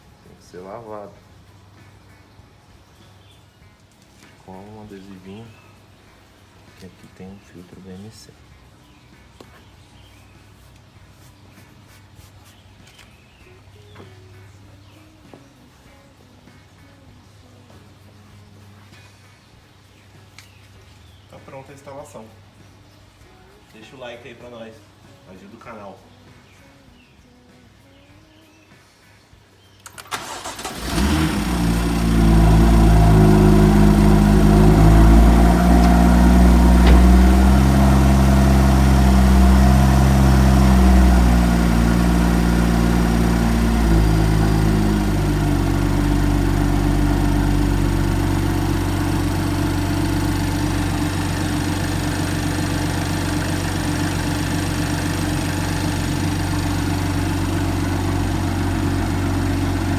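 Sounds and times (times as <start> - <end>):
car engine starting and idling: 29.8 - 59.9.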